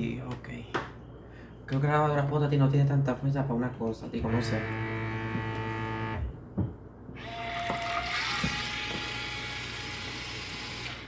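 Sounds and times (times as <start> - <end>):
washing machine motor whirring: 4.2 - 6.4, 7.2 - 11.0.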